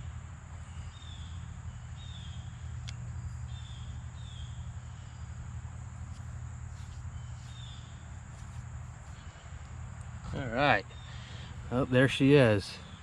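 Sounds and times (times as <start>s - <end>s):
high insect drone: 0.0s - 13.0s
bird chirping: 0.6s - 5.5s, 7.0s - 8.2s, 9.1s - 13.0s.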